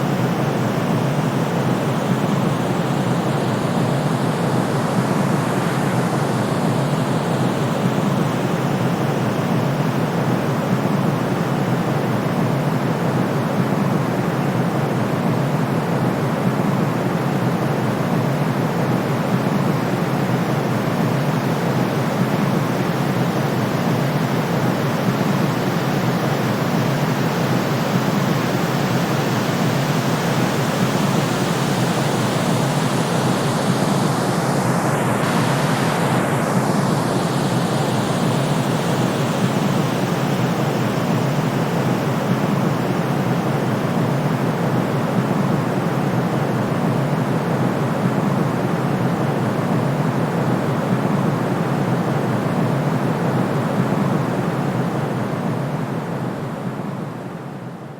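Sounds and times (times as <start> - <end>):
rushing pink noise hiss: 18.6 - 55.4.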